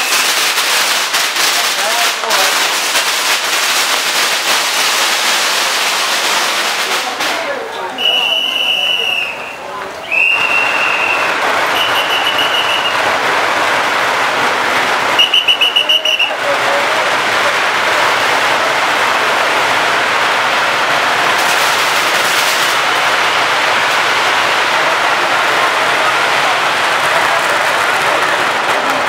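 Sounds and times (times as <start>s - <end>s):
whistle: 0.0s - 0.4s, 8.0s - 13.0s, 15.2s - 16.4s
firecrackers crackling: 0.0s - 29.0s
trilling whistle blast: 8.0s - 13.0s, 15.2s - 16.4s.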